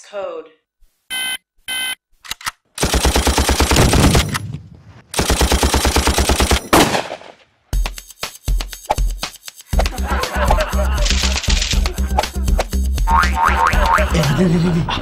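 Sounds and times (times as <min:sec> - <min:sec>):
automatic gunfire bursts: 0:02.8 - 0:04.6, 0:05.2 - 0:07.3
music with pulsing bass beat: 0:07.8 - 0:14.4.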